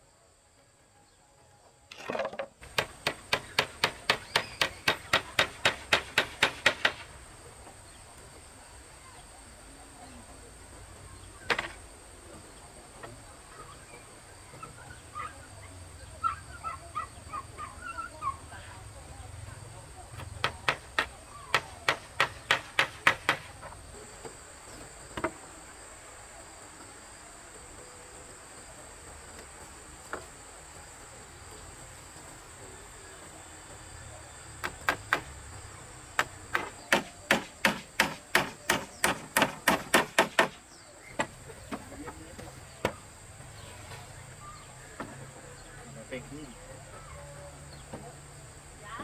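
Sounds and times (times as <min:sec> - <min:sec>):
hammer blows on wood: 0:02.6 - 0:07.2, 0:20.2 - 0:23.8, 0:36.2 - 0:41.3.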